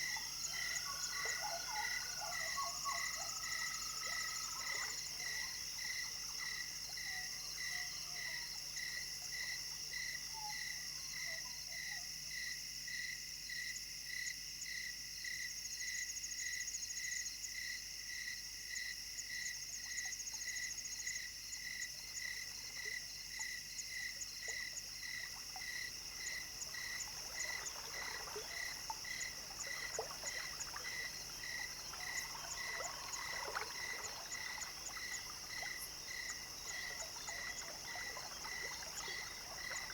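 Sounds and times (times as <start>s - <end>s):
frog calling: 0.0s - 6.1s, 25.2s - 39.9s
insect trill: 0.0s - 12.0s, 20.0s - 39.9s.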